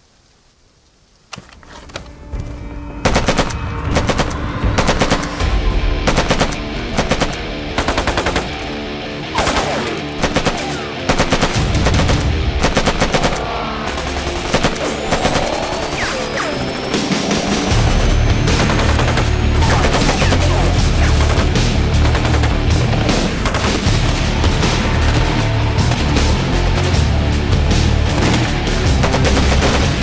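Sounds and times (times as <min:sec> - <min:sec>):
background music: 0:01.6 - 0:30.0
machine-gun fire bursts: 0:09.4 - 0:16.3, 0:17.9 - 0:27.0, 0:28.0 - 0:30.0.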